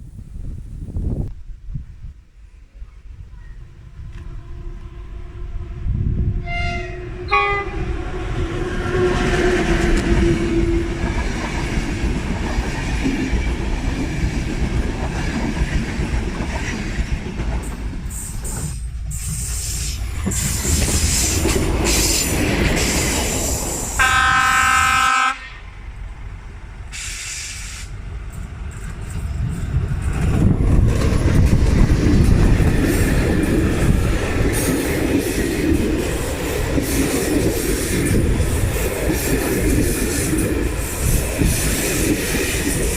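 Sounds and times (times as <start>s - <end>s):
train wheels rumbling on rails: 0.0s - 42.9s
train horn: 3.3s - 11.4s, 24.0s - 25.8s.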